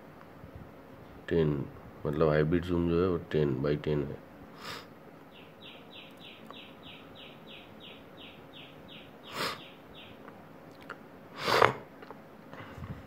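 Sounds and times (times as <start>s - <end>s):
bird chirping: 5.2s - 10.3s.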